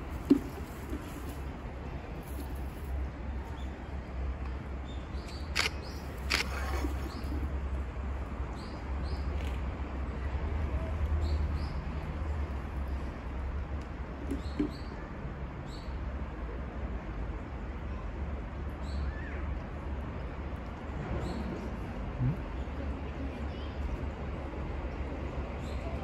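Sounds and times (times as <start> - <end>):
small birds chirping: 4.8 - 7.5
sharp clicks: 5.3 - 6.5.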